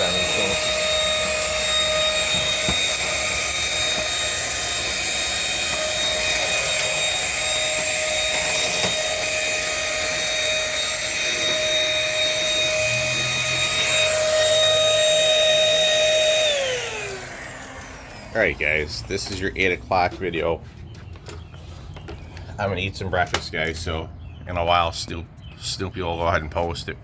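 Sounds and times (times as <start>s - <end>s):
stick vacuum running: 0.0s - 20.6s.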